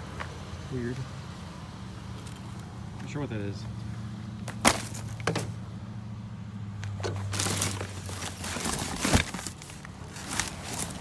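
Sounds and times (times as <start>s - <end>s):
vehicle idling hum: 0.0s - 11.0s
scrap rustling: 7.1s - 11.0s.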